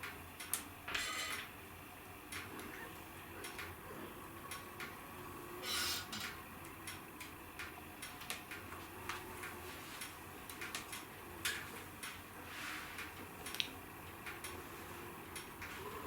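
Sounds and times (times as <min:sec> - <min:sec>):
wood fire crackling and popping: 0:00.0 - 0:01.6, 0:05.8 - 0:14.6, 0:15.2 - 0:15.8.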